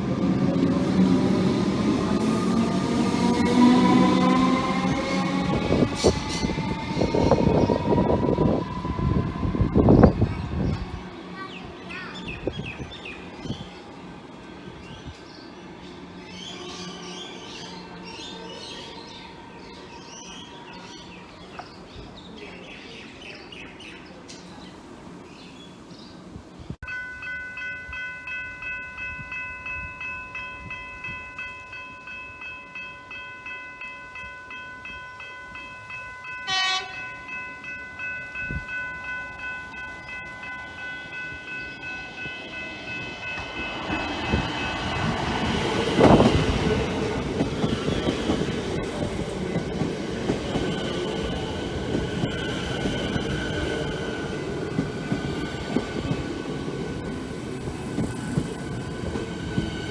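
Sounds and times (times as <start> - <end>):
train wheels on rails: 0.0 - 25.6, 26.3 - 59.9
level crossing bells ringing: 26.8 - 47.8
train horn toot: 36.4 - 37.2.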